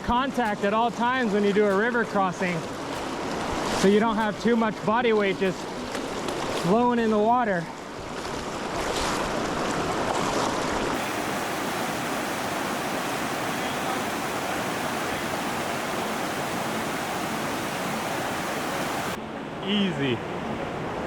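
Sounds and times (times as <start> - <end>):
mountain river rushing: 11.0 - 19.2.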